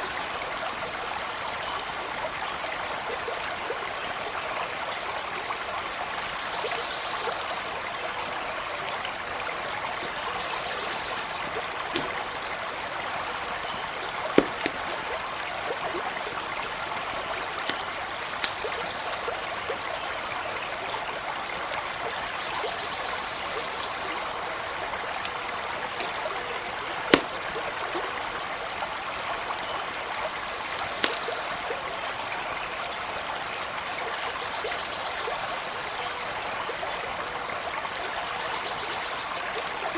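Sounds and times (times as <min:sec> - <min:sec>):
stream running: 0:00.0 - 0:39.9
campfire popping: 0:06.7 - 0:31.8, 0:36.2 - 0:39.9.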